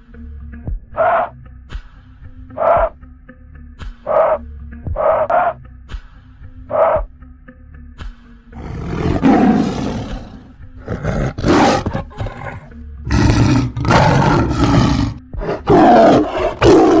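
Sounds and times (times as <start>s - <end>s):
large animal roaring: 5.0s - 5.6s, 8.6s - 17.0s.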